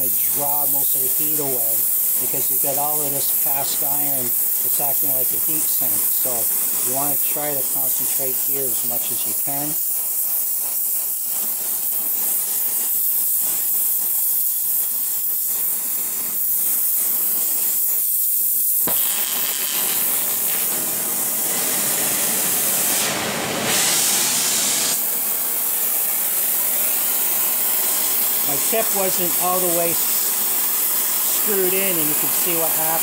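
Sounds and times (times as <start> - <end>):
torch flame hissing: 0.0 - 33.0
sharp pop: 18.8 - 19.1.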